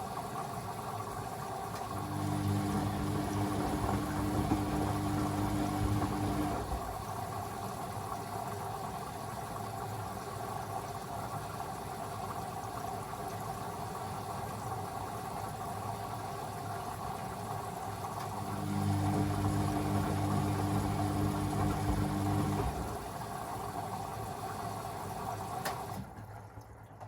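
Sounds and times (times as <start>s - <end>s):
washing machine hum: 0.0s - 27.0s
drum motor starting: 1.8s - 7.1s, 18.3s - 23.1s.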